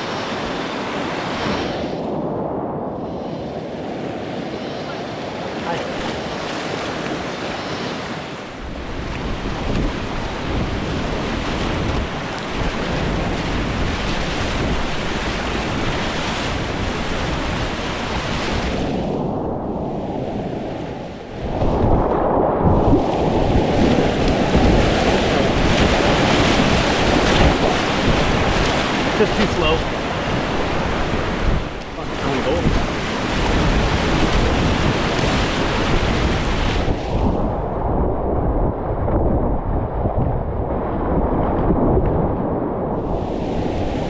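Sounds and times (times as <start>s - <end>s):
rushing whitewater: 0.0s - 1.9s, 3.5s - 18.8s, 22.9s - 37.2s
wind buffeting microphone: 0.0s - 44.0s.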